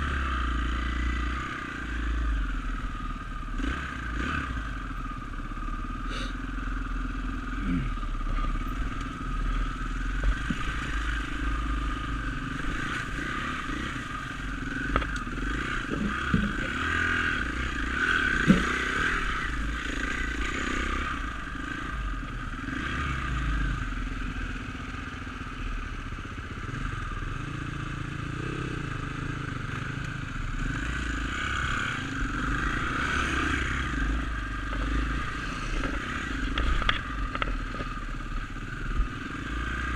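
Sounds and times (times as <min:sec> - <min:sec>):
dirt bike engine running: 0:00.0 - 0:39.9
sharp knocks: 0:18.4 - 0:18.8.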